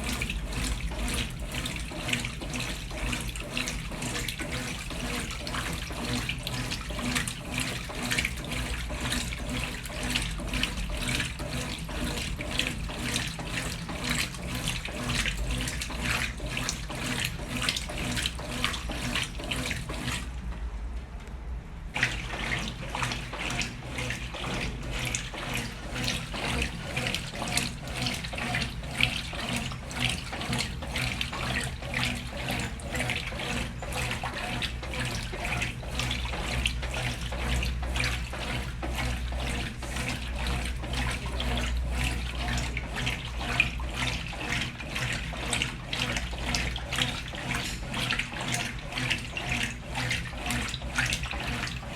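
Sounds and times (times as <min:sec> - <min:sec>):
water and clothes sloshing: 0:00.0 - 0:20.4, 0:21.9 - 0:51.9
washing machine motor hum: 0:00.0 - 0:51.9.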